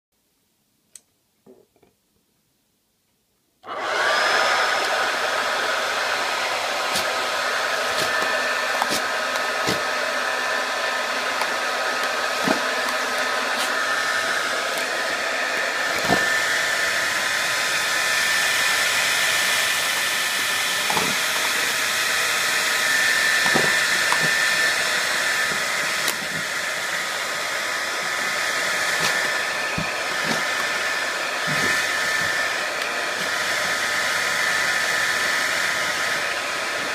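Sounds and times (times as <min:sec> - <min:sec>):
hairdryer blowing: 0:03.6 - 0:36.9.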